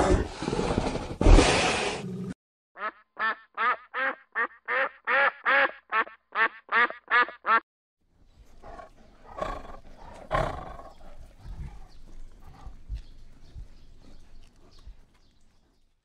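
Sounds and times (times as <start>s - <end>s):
ducks quacking: 2.8s - 7.6s
tiger growling: 8.4s - 15.9s.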